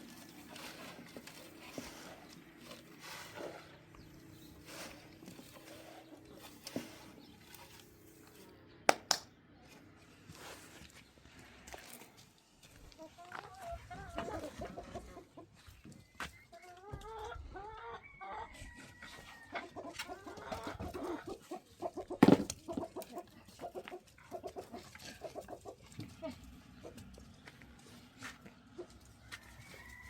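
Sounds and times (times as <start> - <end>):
chickens clucking: 12.8 - 30.0.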